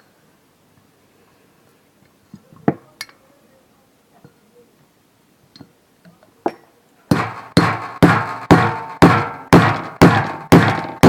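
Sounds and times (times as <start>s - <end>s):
ringing hammer blows on metal: 7.1s - 11.0s.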